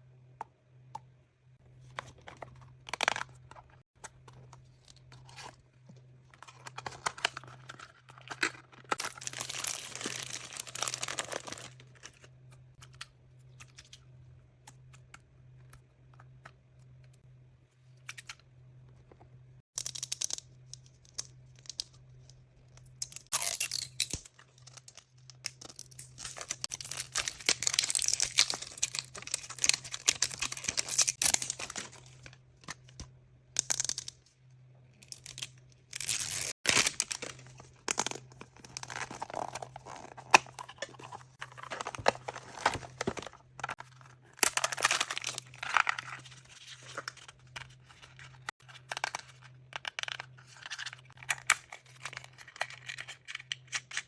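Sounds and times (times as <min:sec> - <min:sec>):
wrapping torn and crinkled: 0:08.2 - 0:12.1.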